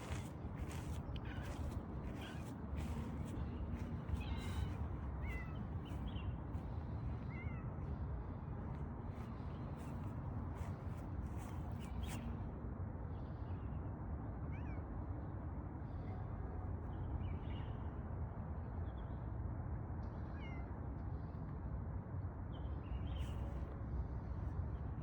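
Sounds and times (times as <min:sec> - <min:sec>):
low steady rumble: 0:00.0 - 0:11.9
cat meowing faintly: 0:04.1 - 0:05.8, 0:20.2 - 0:20.8.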